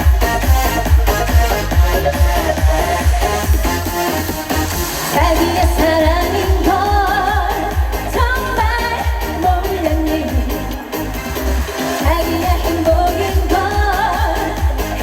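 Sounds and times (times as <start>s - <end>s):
edm backing track with kick drum: 0.0s - 15.0s
woman singing live: 5.2s - 11.0s, 12.0s - 15.0s.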